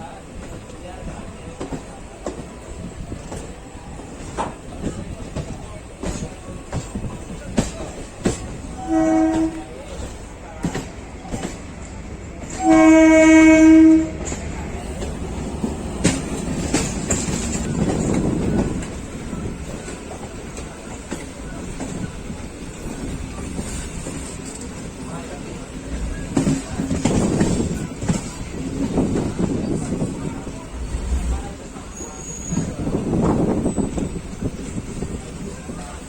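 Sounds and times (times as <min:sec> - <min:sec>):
train running at speed: 0:00.0 - 0:36.0
train horn blasts: 0:08.7 - 0:09.8, 0:12.4 - 0:14.4
wheels clicking over rail joints: 0:14.1 - 0:30.0.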